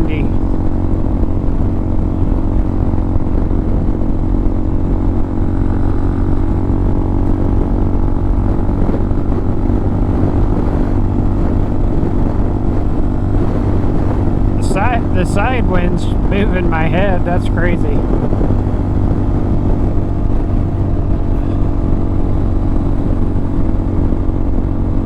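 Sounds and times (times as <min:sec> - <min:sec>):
motorcycle engine cruising: 0:00.0 - 0:25.0
wind buffeting microphone: 0:00.0 - 0:25.0.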